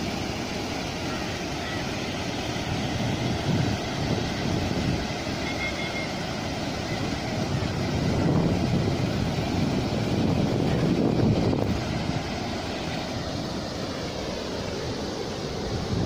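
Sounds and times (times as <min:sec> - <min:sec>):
wind buffeting microphone: 0:02.6 - 0:05.4, 0:06.7 - 0:13.5, 0:15.6 - 0:16.0.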